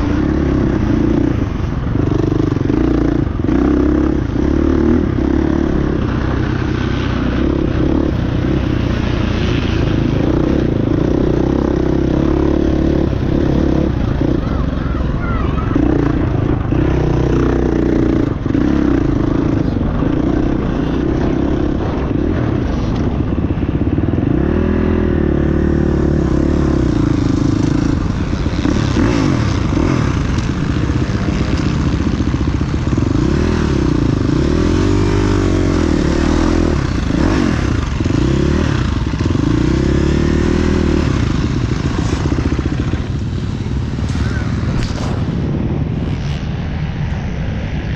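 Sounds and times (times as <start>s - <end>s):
dirt bikes revving and passing: 0.0s - 47.9s.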